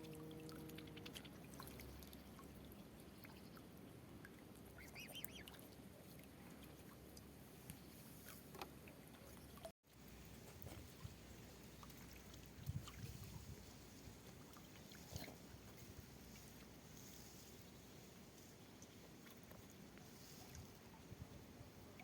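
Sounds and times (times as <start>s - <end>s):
waterfowl call: 4.8s - 5.6s.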